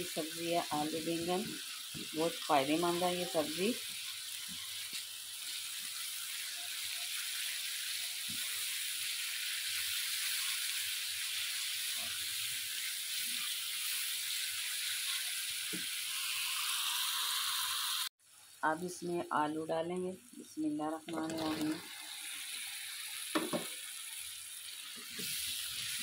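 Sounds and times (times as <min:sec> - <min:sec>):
food sizzling in oil: 0:00.0 - 0:26.0
wooden spatula knocking on pan: 0:23.3 - 0:23.7.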